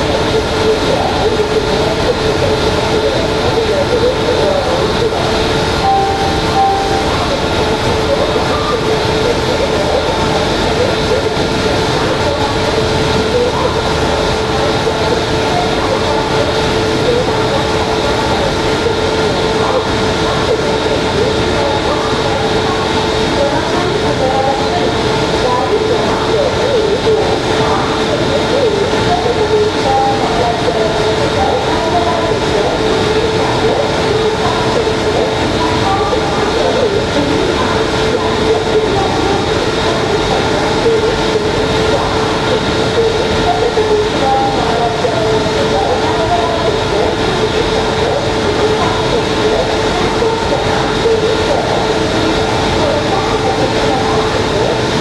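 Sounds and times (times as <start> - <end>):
rushing noise: 0.0 - 21.0
electric locomotive hum and whine: 0.0 - 55.0.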